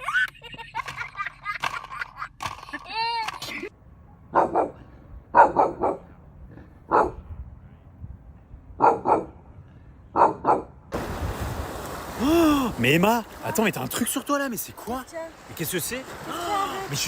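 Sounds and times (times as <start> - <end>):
dog barking: 4.3 - 6.2, 6.9 - 7.2, 8.8 - 9.4, 10.2 - 10.7.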